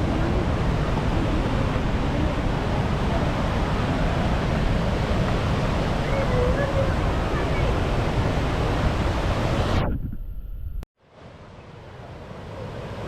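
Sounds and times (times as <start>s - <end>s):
waterfall rushing: 0.0s - 9.8s
wind buffeting microphone: 0.0s - 10.8s.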